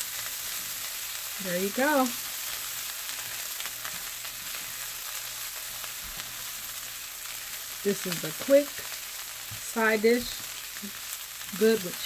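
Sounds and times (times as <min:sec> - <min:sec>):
food sizzling in a skillet: 0:00.0 - 0:12.0
spatula stirring in a pan: 0:00.0 - 0:12.0.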